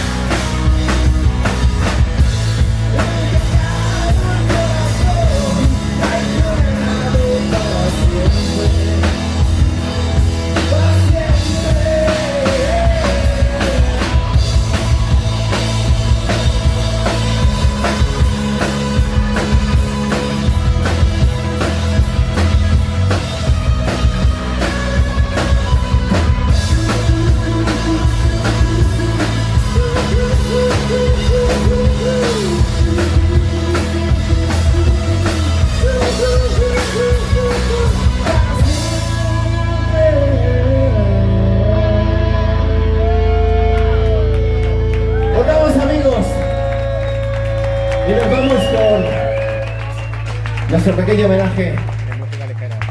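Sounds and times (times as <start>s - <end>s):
drum kit beat: 0.0s - 39.7s
hard rock band playing live: 0.0s - 51.6s.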